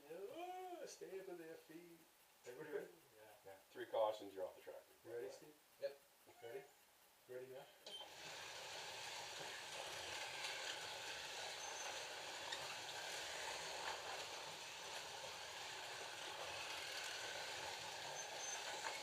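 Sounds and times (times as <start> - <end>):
slot cars whirring: 7.9 - 19.0.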